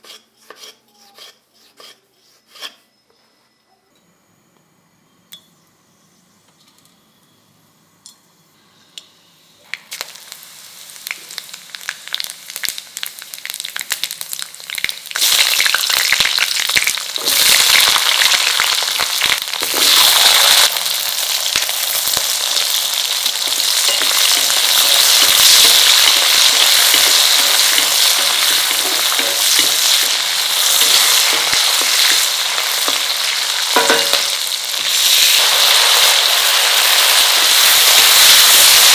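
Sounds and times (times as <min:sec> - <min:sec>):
oil frying and sizzling: 0:09.6 - 0:38.9.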